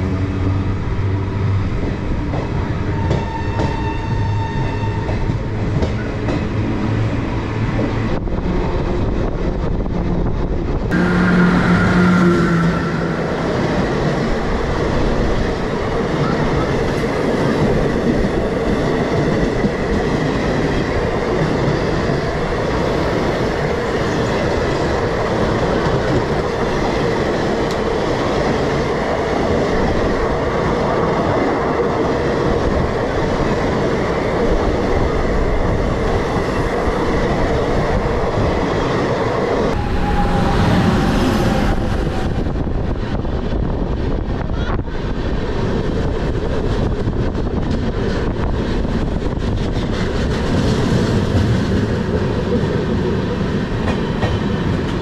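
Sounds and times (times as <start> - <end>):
train coaches rumbling on rails: 0.0 - 55.0.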